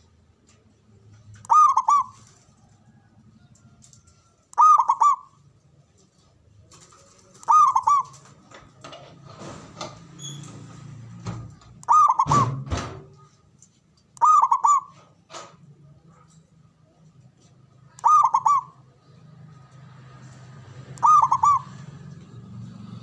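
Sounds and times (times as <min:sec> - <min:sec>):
dove cooing: 0:01.2 - 0:03.7, 0:04.5 - 0:05.4, 0:07.2 - 0:08.4, 0:11.8 - 0:12.8, 0:14.2 - 0:15.1, 0:17.9 - 0:19.2, 0:20.8 - 0:23.0.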